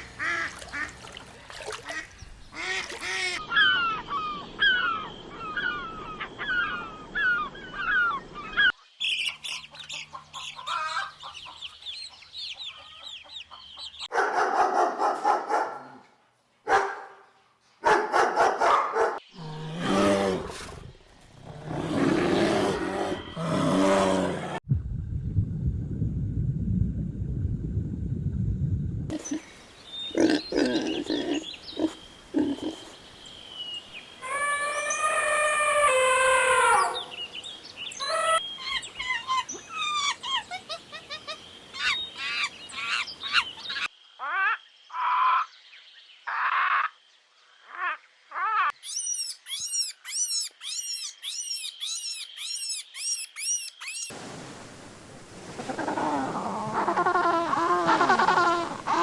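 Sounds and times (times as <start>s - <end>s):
animal chirping calls: 47.7s - 54.1s
quick high falling calls: 47.8s - 54.2s.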